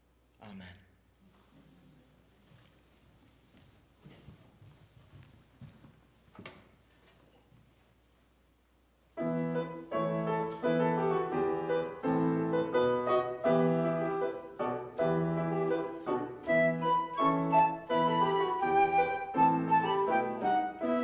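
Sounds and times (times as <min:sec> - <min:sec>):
keyboard chords: 0:09.2 - 0:21.0.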